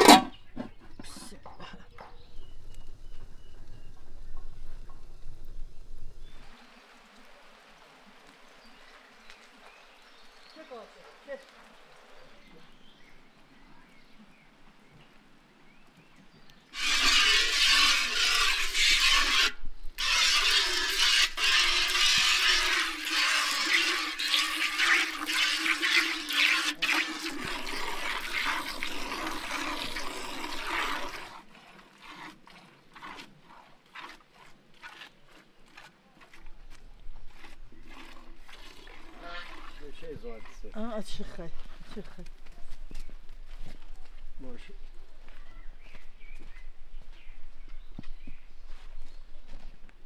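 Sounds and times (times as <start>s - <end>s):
milk squirting into metal pail: 16.8s - 40.6s.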